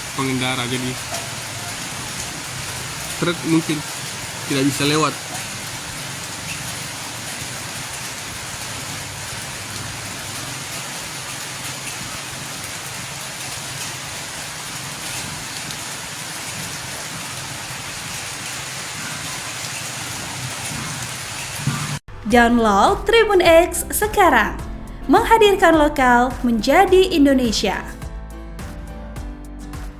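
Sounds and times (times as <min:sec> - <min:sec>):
rain falling: 0:00.0 - 0:22.1.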